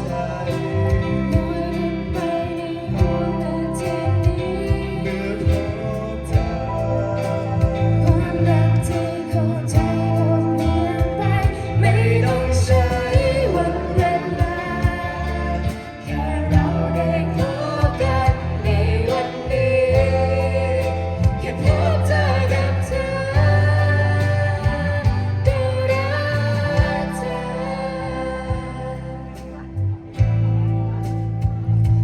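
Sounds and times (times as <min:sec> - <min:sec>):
person singing: 0:00.0 - 0:31.0
band playing a song: 0:00.0 - 0:32.0.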